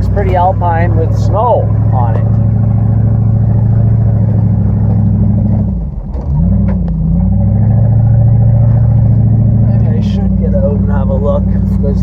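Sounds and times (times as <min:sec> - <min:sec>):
pickup engine pulling uphill: 0:00.0 - 0:12.0.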